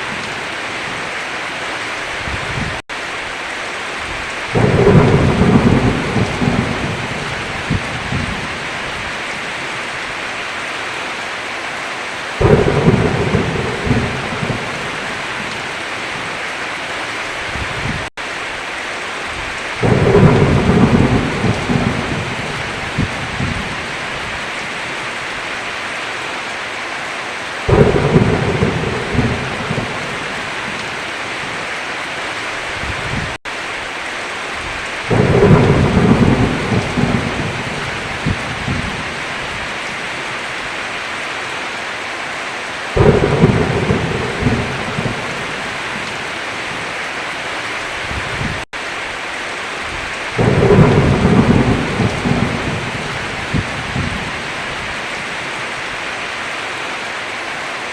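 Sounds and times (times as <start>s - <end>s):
heavy rain falling: 0.0s - 57.9s
thunder rumbling: 4.0s - 9.6s, 12.4s - 16.3s, 19.3s - 25.1s, 27.7s - 31.6s, 34.6s - 40.3s, 43.0s - 47.0s, 49.9s - 55.0s.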